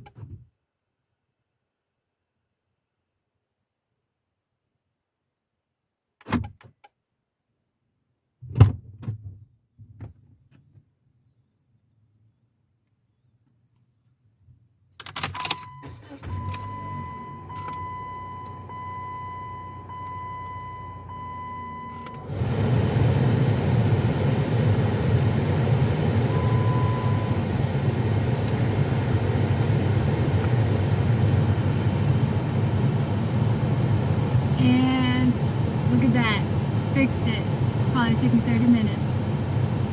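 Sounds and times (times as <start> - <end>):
car keys jangling: 14.9 - 16.8
dashboard warning chime: 15.3 - 22.3, 26.2 - 27.5, 36.0 - 39.2
car engine running: 22.2 - 39.9.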